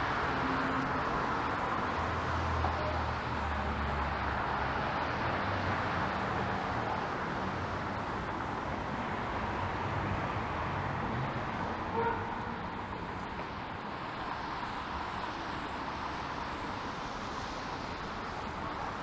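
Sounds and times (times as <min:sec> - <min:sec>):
tyres hissing on wet pavement: 0:12.7 - 0:19.0.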